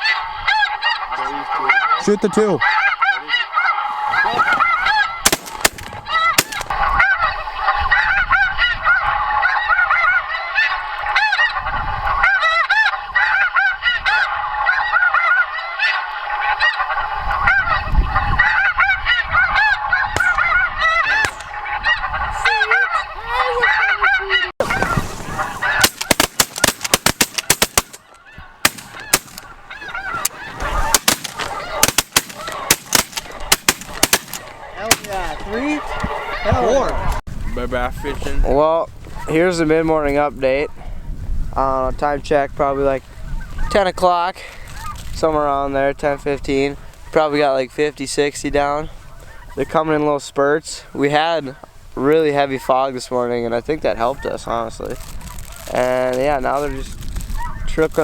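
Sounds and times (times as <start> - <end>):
geese honking: 0.0 - 37.2, 53.9 - 56.6.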